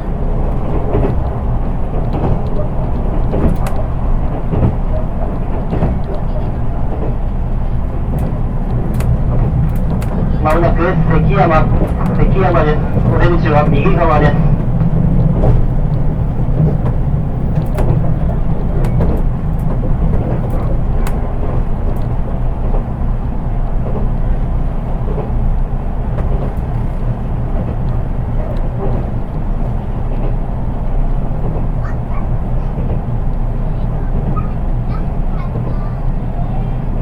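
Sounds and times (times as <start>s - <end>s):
train wheels rumbling on rail: 0.0s - 37.0s
faint clicks: 0.4s - 10.7s, 32.8s - 33.5s.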